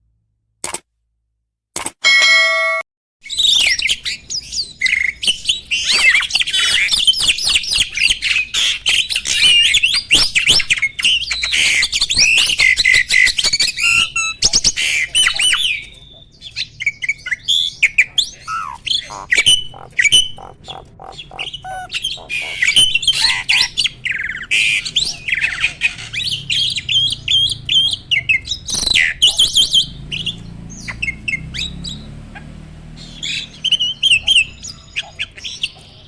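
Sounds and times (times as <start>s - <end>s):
starling singing: 3.4s - 32.1s, 32.9s - 36.0s
bird squawks and calls: 11.3s - 31.7s, 33.0s - 36.0s.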